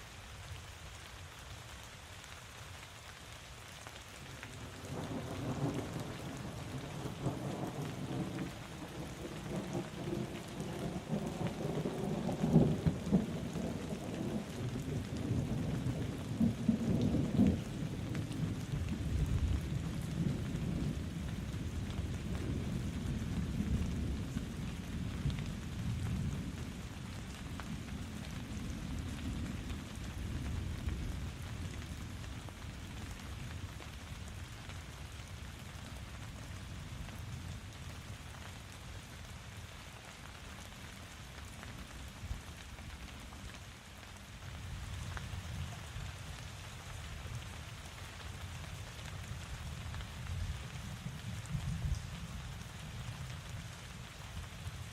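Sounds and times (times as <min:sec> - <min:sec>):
rain hissing: 0:00.0 - 0:54.9
thunder rumbling: 0:04.8 - 0:26.8.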